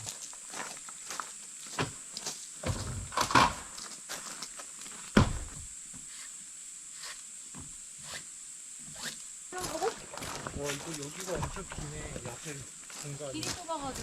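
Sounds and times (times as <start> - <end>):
knocks and thuds: 5.1 - 5.7.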